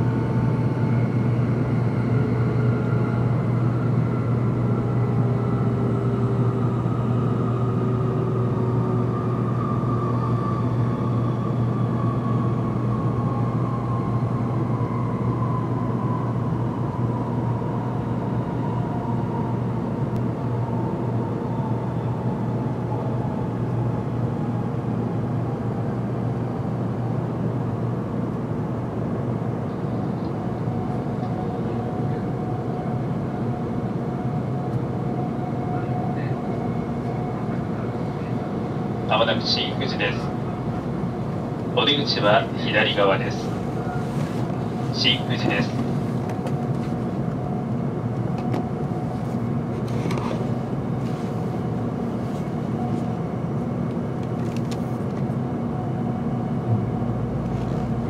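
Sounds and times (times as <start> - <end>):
train running noise rumble: 23.2 - 58.0.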